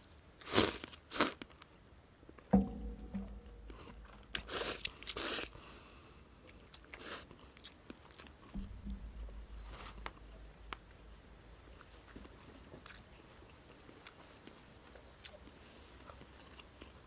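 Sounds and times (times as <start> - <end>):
person chewing: 0.4 - 1.4, 4.3 - 5.6, 11.8 - 14.6
soft knock: 2.5 - 4.5, 8.6 - 10.8.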